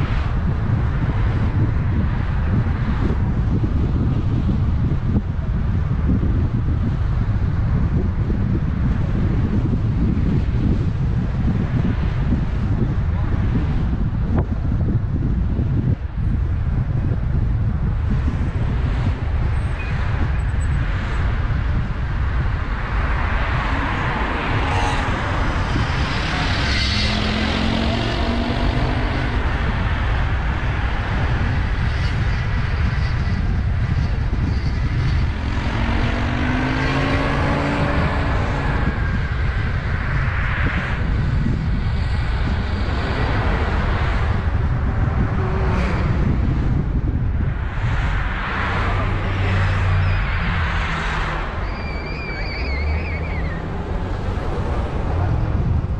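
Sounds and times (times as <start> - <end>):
car road noise rumble: 0.0 - 55.9
engine tone rising: 23.1 - 30.9, 35.0 - 39.7, 48.6 - 55.9.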